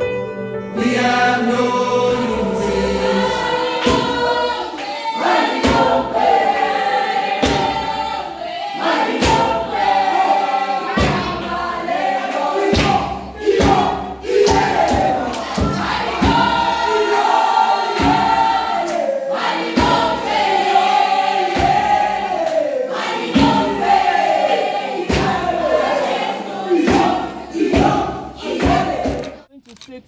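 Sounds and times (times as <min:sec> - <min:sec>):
gospel choir singing: 0:00.7 - 0:29.5
drum beat: 0:03.3 - 0:29.4.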